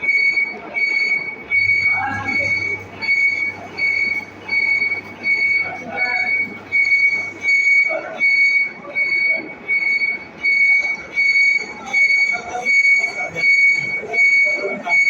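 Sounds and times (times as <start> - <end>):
lathe high-pitched squeal: 0.0 - 15.0
lathe machine noise: 0.8 - 8.6.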